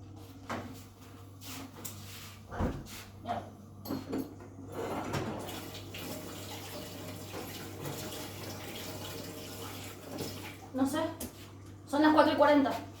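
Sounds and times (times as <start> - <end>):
tap water running into sink: 5.2 - 11.4.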